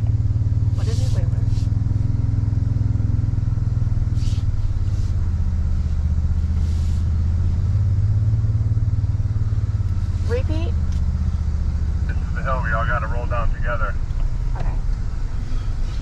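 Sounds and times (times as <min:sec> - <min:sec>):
truck engine droning: 0:00.0 - 0:16.0
short hisses: 0:06.6 - 0:07.1.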